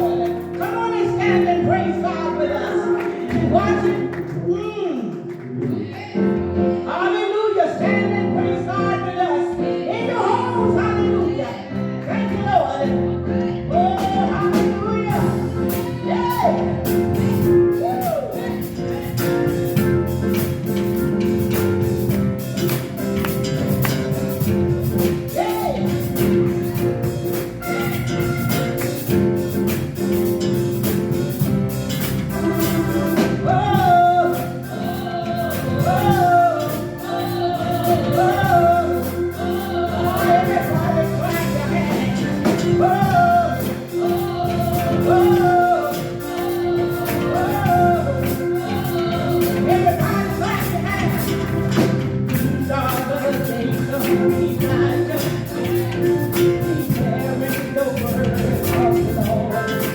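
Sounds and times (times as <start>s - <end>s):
band playing: 0.0s - 59.9s
person singing: 32.3s - 59.9s.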